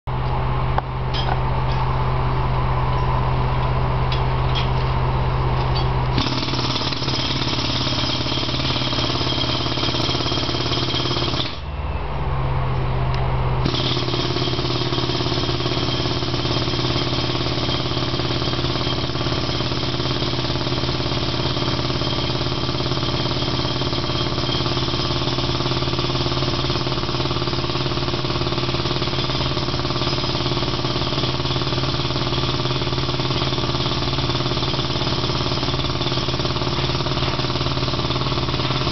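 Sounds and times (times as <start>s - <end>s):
jackhammer breaking concrete: 6.2s - 11.6s, 13.6s - 38.9s.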